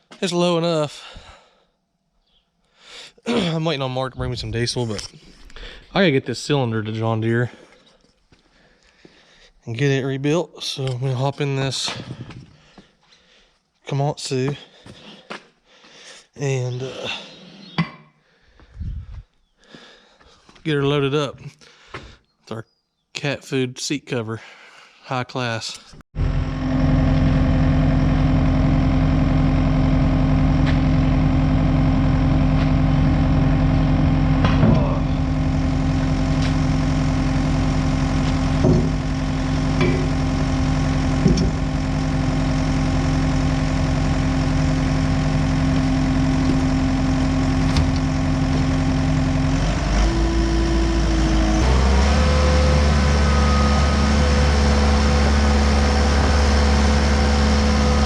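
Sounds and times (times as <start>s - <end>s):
diesel engine running: 26.2s - 58.0s
knocks and rattles: 38.2s - 40.2s, 41.2s - 41.8s.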